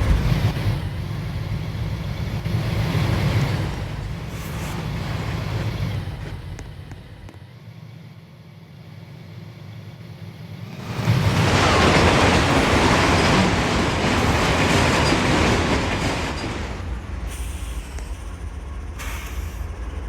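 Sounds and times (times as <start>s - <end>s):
freight train cars clattering: 0.0s - 7.4s, 10.7s - 20.0s.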